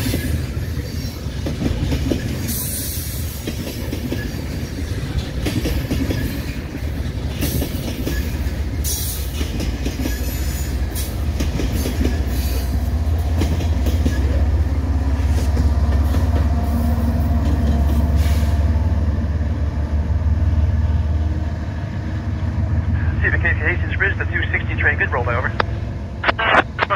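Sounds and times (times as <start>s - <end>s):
freight train wheels clicking: 0.0s - 18.8s
diesel locomotive engine drone: 0.0s - 26.9s.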